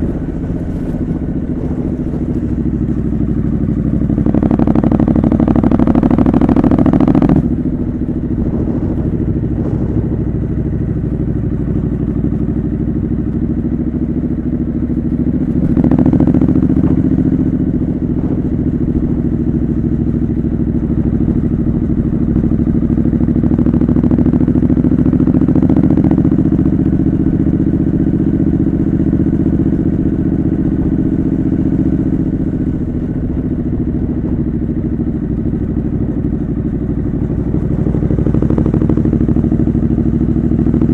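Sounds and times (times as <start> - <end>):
wind buffeting microphone: 0.0 - 13.1, 14.9 - 23.2
motorcycle engine running: 0.0 - 40.9.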